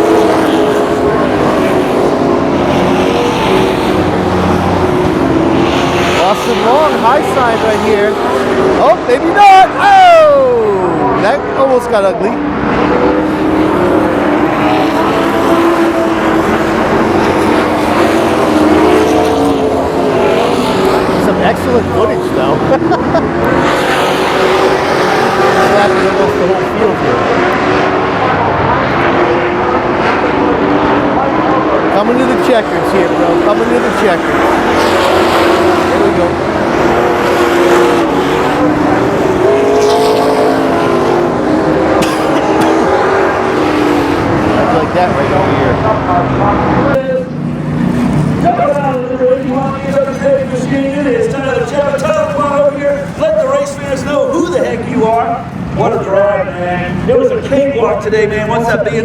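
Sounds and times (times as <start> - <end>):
race truck engines at speed: 0.0 - 59.0.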